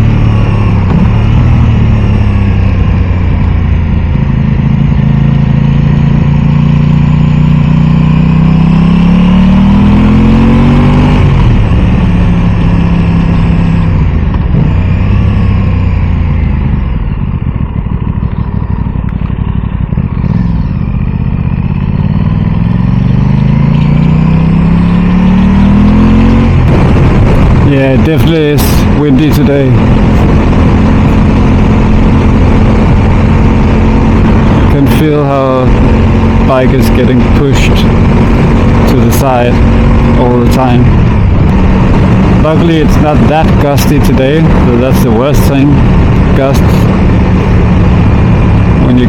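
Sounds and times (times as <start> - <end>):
motorcycle engine revving: 0.0 - 49.0
wind on microphone: 26.5 - 34.8, 35.4 - 48.8.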